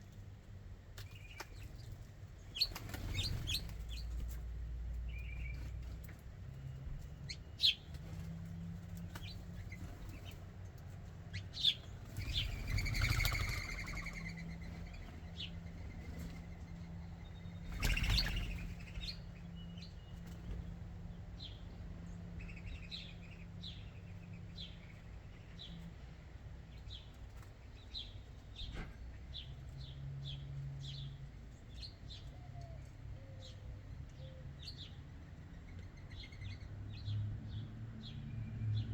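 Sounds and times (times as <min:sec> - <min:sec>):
small songbirds chirping: 0:00.1 - 0:38.9
wings flapping: 0:02.5 - 0:04.4, 0:12.0 - 0:15.3, 0:17.6 - 0:19.0.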